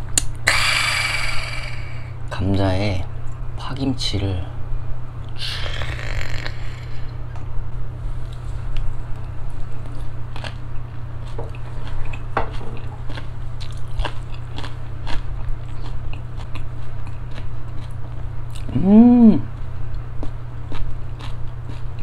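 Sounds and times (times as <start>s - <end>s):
steady low hum: 0.0s - 22.0s
wet chewing with crisp clicks: 8.3s - 18.8s, 19.5s - 22.0s.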